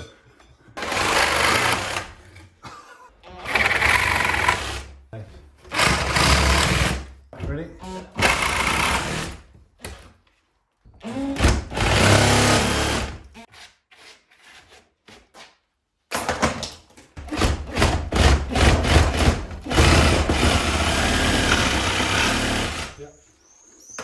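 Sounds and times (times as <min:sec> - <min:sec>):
reciprocating saw cutting nails: 0:17.8 - 0:23.1.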